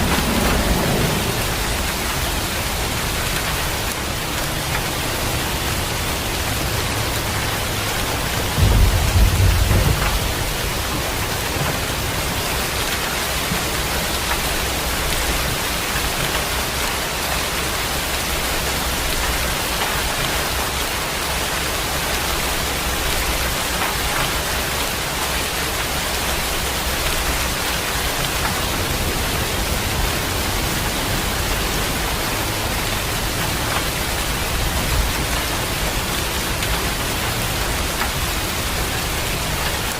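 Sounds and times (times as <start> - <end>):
low rumble of thunder: 0.0 - 3.9, 7.8 - 16.4
heavy rain falling: 0.0 - 39.9.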